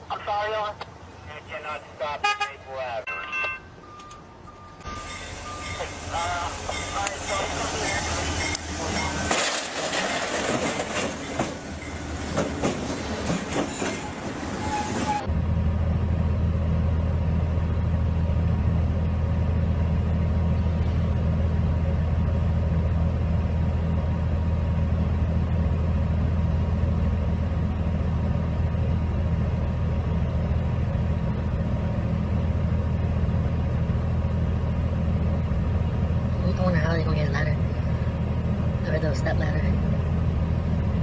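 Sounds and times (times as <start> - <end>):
vehicle engine droning: 14.7 - 41.0.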